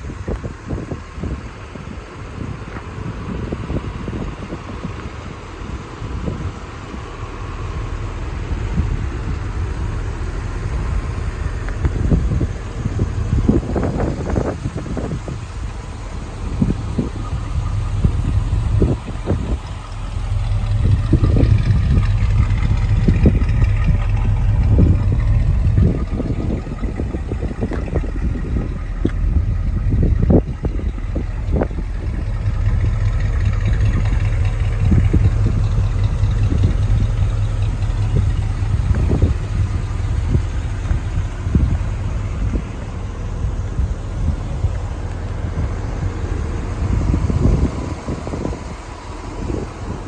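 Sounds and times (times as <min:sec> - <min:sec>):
truck engine running: 0:00.0 - 0:50.0.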